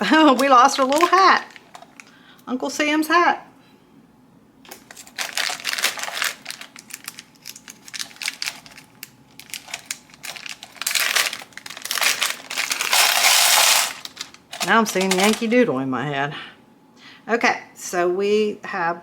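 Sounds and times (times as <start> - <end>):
plastic bag crinkling: 0.0 - 2.3, 4.7 - 15.7.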